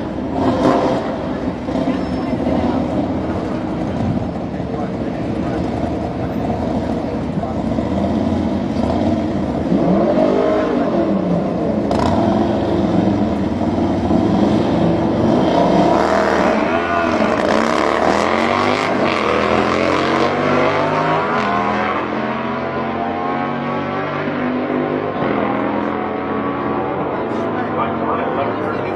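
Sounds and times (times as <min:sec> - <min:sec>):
vehicle engine revving: 0:00.0 - 0:28.9.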